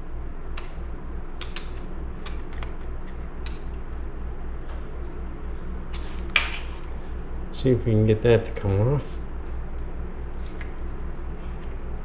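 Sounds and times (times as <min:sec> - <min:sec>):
low pulsing hum: 0:00.0 - 0:12.0.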